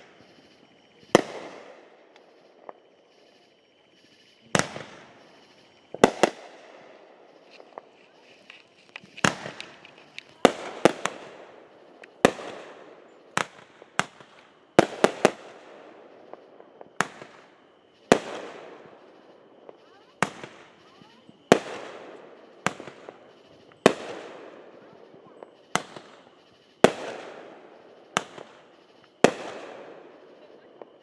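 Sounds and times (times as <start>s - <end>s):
fireworks bangs: 0.0s - 31.0s.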